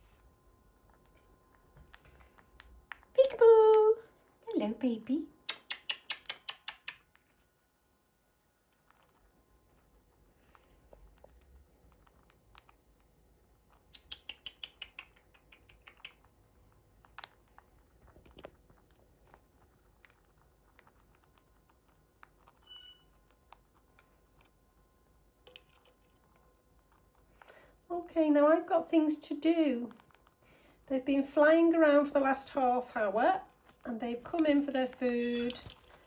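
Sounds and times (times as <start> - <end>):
birds crunching pellets: 8.5 - 27.9, 32.1 - 36.0
short high-pitched squeak: 22.6 - 23.1.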